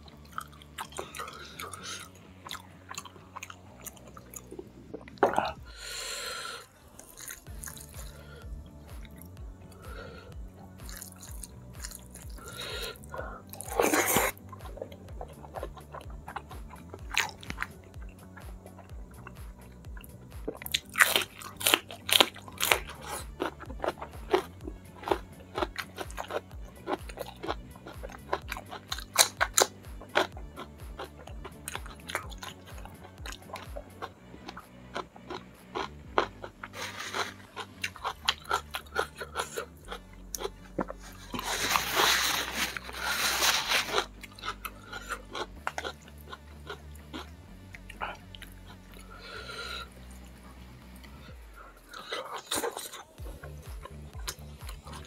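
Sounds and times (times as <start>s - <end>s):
crunching raw vegetables: 0.0s - 50.4s, 51.1s - 55.0s.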